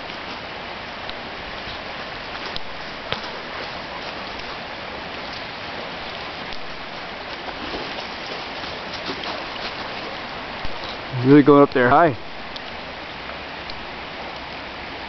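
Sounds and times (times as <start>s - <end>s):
faint ticks: 12.5s - 14.6s.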